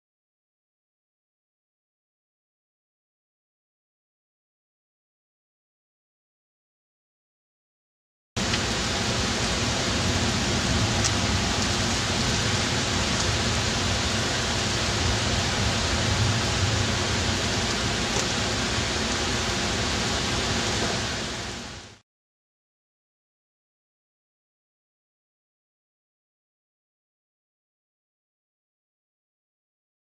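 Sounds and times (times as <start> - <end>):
rain hissing: 8.4 - 22.0.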